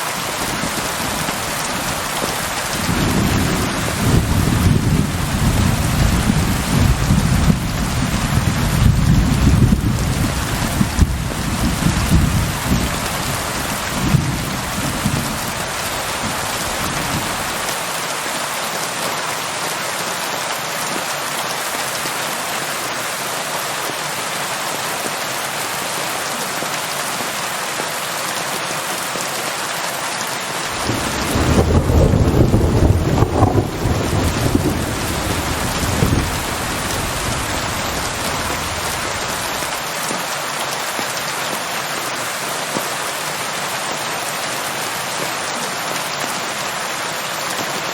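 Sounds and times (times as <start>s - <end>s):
heavy rain: 0.0s - 47.9s
thunder rumbling: 0.7s - 17.6s, 30.7s - 39.8s.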